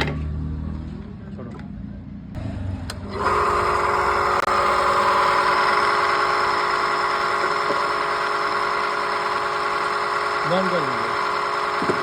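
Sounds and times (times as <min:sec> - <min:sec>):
water pump motor whining: 0:03.0 - 0:12.0.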